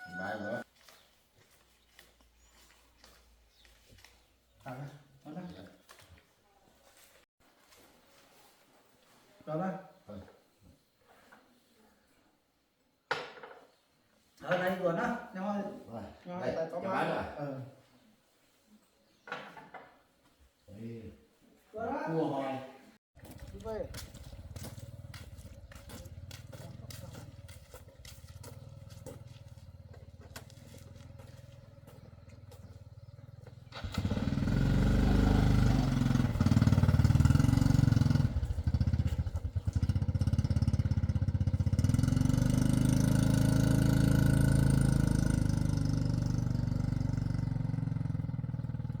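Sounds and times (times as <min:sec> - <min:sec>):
heavy diesel engine revving: 0:33.7 - 0:38.6, 0:41.8 - 0:49.0.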